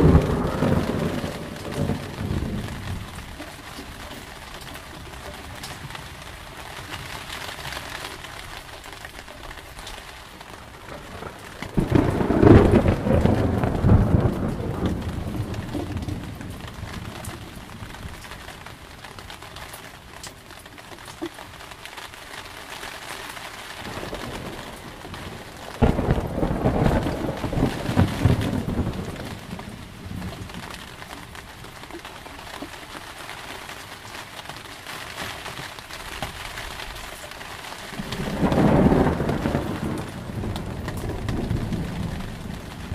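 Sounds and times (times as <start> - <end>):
thunder rumbling: 0.0 - 4.2, 10.5 - 18.9, 23.8 - 31.8, 37.8 - 42.9
steady rain: 0.0 - 42.9.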